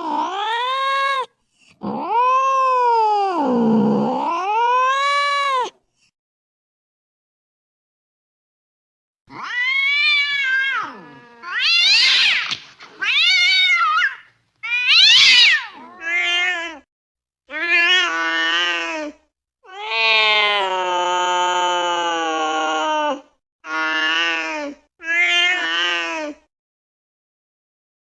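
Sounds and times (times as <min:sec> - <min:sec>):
cat meowing: 0:09.3 - 0:16.9, 0:25.0 - 0:26.3.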